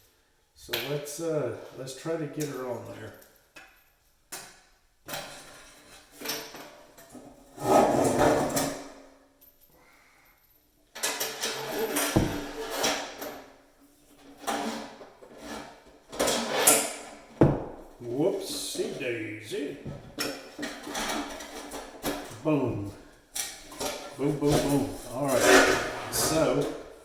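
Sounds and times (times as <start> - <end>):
sharp knocks: 12.1 - 12.9, 17.4 - 18.0
metal parts clattering and scraping: 20.5 - 22.3, 23.4 - 27.0.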